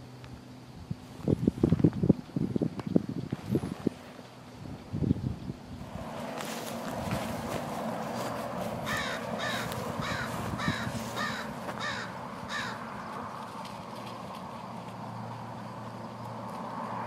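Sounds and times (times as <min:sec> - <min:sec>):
bird calling short calls: 0:08.8 - 0:12.8.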